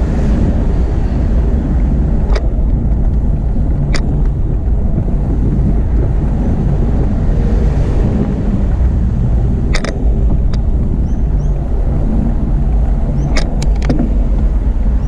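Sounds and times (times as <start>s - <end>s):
low road rumble: 0.0s - 15.0s
wind buffeting microphone: 0.0s - 15.0s
sharp clicks: 9.7s - 10.7s, 13.2s - 14.1s.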